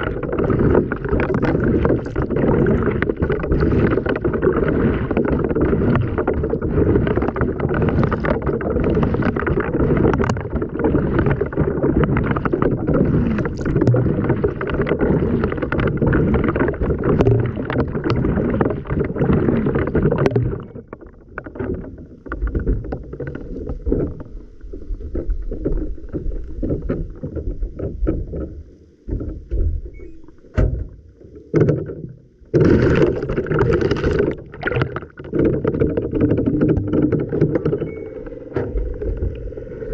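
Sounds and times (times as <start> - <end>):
water churning in washing machine: 0.0 - 24.3, 32.5 - 39.9
water splashes: 0.0 - 39.9.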